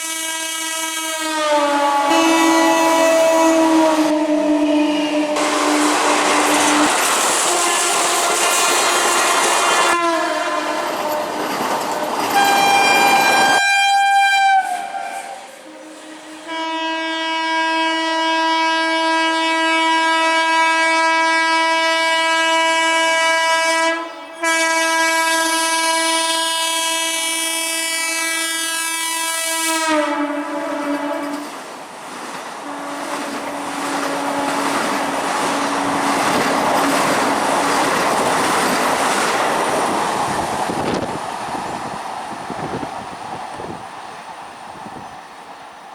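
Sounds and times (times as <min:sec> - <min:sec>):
train horn blasts: 0:00.0 - 0:11.3, 0:12.4 - 0:31.5, 0:32.6 - 0:36.4
train wheels clattering: 0:05.4 - 0:09.9, 0:10.8 - 0:13.6, 0:30.8 - 0:41.6.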